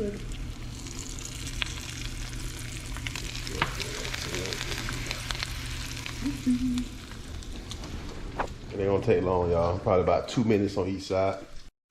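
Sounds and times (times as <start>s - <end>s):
fish frying in hot grease: 0.0s - 7.8s.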